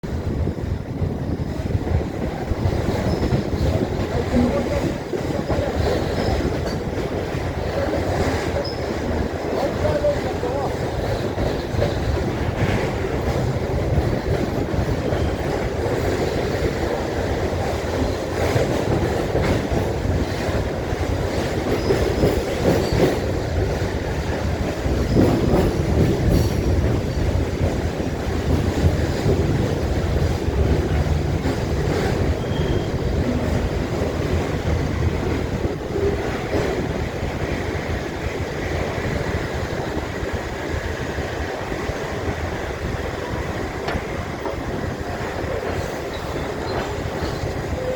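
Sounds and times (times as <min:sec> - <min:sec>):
train wheels rumbling on track: 0:00.0 - 0:47.9
wheel squeals: 0:03.0 - 0:03.4, 0:08.6 - 0:09.0, 0:32.3 - 0:33.4.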